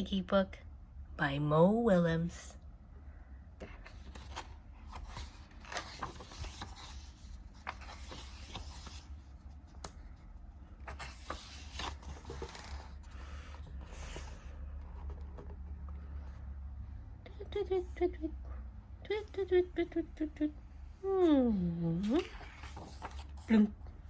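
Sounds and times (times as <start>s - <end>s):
low steady hum: 0.0s - 24.0s
paper pages rustling and turning: 3.6s - 16.3s, 22.0s - 24.0s.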